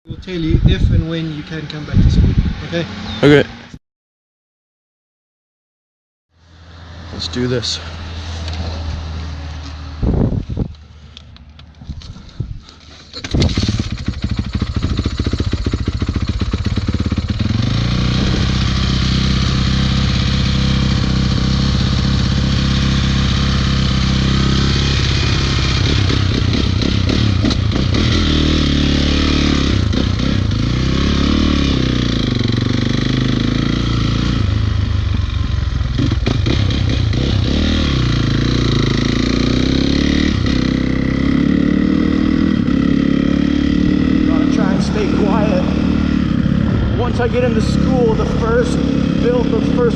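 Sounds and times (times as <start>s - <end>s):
dirt bike engine revving: 13.2s - 49.9s.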